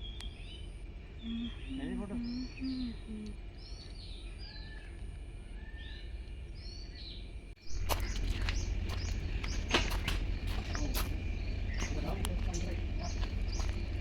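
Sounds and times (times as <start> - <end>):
birds chirping: 0.0 - 14.0
low hooting: 0.0 - 14.0
low rumble with sharp clicks: 0.0 - 14.0.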